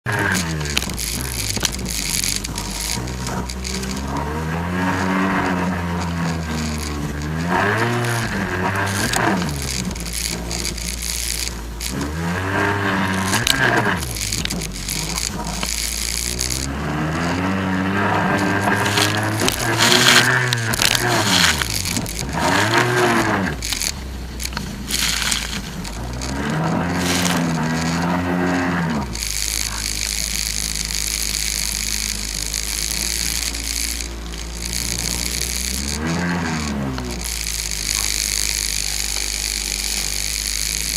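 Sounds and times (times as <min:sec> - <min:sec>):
jet ski engine revving: 0:00.0 - 0:40.9
sharp clicks and clatter: 0:00.0 - 0:40.9
constant hiss: 0:00.1 - 0:40.9.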